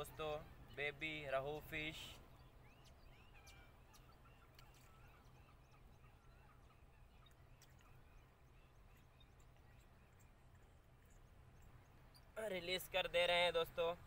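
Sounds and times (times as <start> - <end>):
faint bird chirps: 0.0 - 14.0
faint ticks: 4.0 - 4.9.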